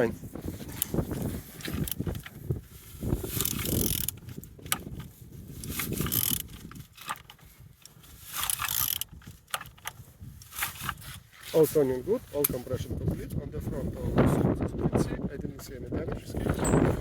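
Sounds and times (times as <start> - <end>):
engine turned over by hand: 0.7 - 11.2.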